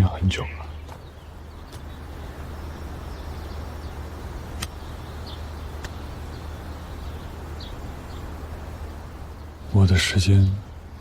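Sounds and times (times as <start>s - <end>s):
steady low rumble: 0.0s - 11.0s
faint clicks: 4.6s - 4.8s, 5.8s - 6.0s.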